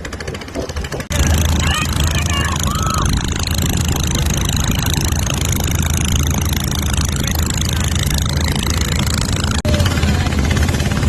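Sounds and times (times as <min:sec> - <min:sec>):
engine humming with hiss: 0:01.1 - 0:11.0.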